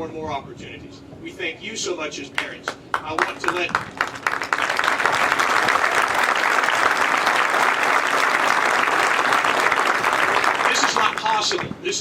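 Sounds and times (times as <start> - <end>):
audience applauding: 2.9 - 11.7.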